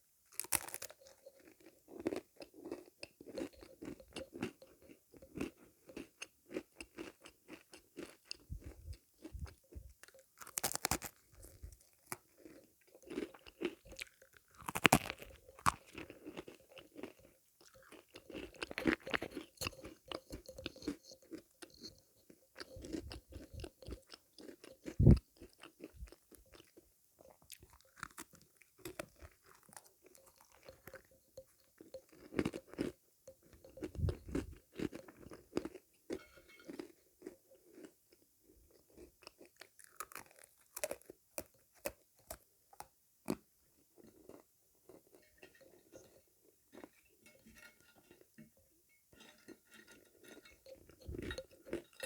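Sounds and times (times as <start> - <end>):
crunchy sweets chewing: 0.3 - 37.9, 38.7 - 43.4.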